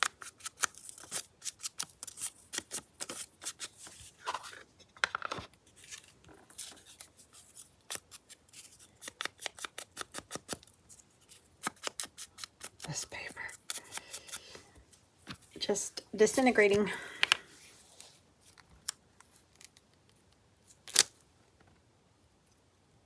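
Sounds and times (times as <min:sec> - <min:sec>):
scissors cutting paper: 0:00.0 - 0:04.4, 0:06.5 - 0:14.6.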